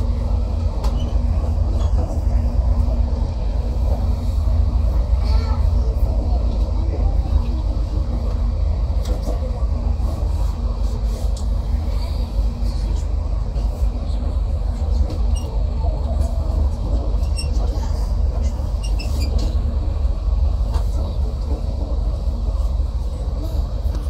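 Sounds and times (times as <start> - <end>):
train wheels rumbling: 0.0 - 24.0.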